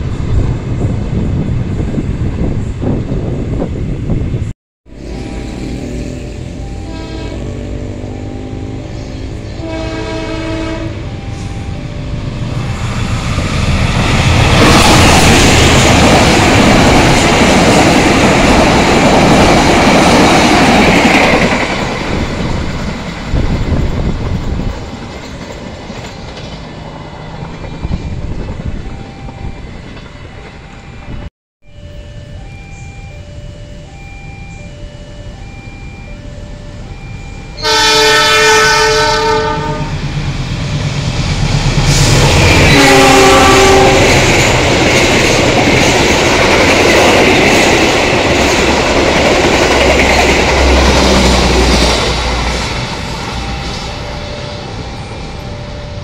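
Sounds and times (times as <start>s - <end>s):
train passing close: 0.0s - 56.0s
locomotive horn blasts: 4.9s - 11.7s, 37.6s - 40.0s, 42.4s - 44.3s.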